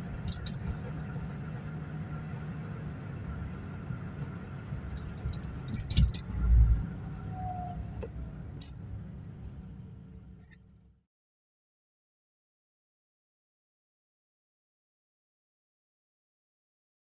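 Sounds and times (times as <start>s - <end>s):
car engine cruising: 0.0s - 10.9s
road noise: 0.0s - 11.0s.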